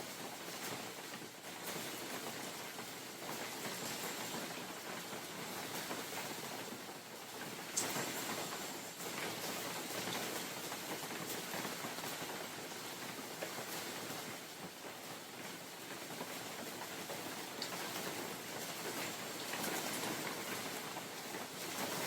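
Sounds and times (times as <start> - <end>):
rain drops ticking: 0.0 - 22.0
rain hissing: 1.6 - 14.0.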